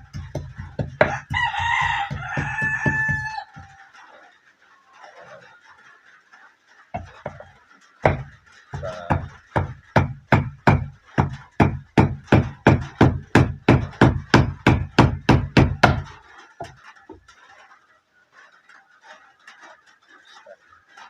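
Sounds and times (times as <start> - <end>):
heavy blows on a hard surface: 0.0 - 3.8, 7.0 - 17.3.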